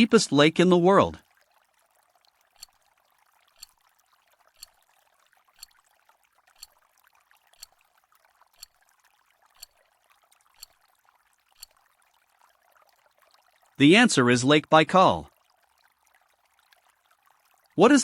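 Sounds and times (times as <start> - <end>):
timer ticking: 2.6 - 2.8, 3.5 - 3.8, 4.5 - 4.9, 5.6 - 5.8, 6.5 - 6.8, 7.5 - 7.8, 8.6 - 8.8, 9.6 - 9.8, 10.6 - 10.8, 11.6 - 11.8.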